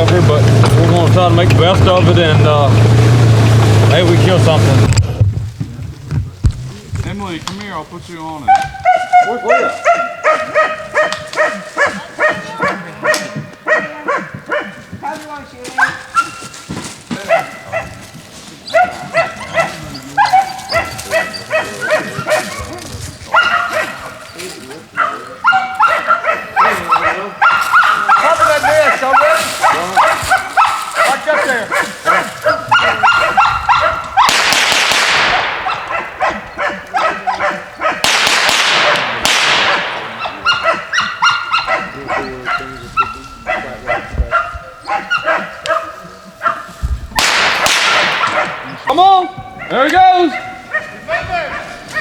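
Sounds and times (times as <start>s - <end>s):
loud noisy blasts: 0.0s - 5.6s, 31.7s - 41.0s, 47.1s - 49.0s
dogs barking sharply: 8.4s - 52.0s.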